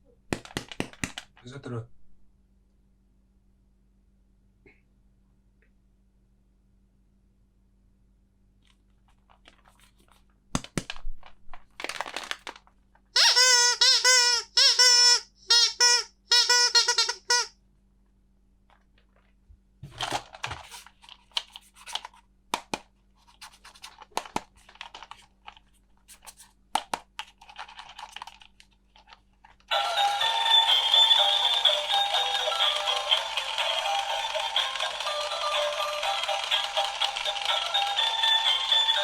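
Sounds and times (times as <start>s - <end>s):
packaging crinkling: 11.6s - 12.8s
tinny electronic toy tune: 13.2s - 17.5s, 29.7s - 39.0s
plastic toy pieces clicking: 26.8s - 29.2s, 31.3s - 39.0s.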